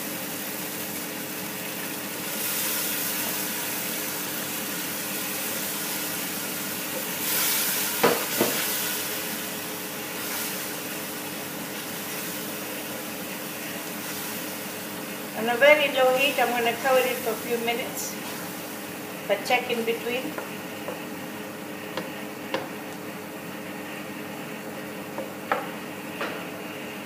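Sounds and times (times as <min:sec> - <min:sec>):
masala sizzling in a pot: 0:00.0 - 0:27.0
wooden spoon knocking against pot: 0:25.2 - 0:25.7.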